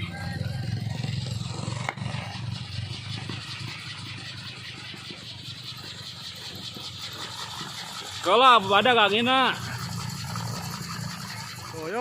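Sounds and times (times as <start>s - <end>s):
wind propeller buzzing drone: 0.0s - 12.0s.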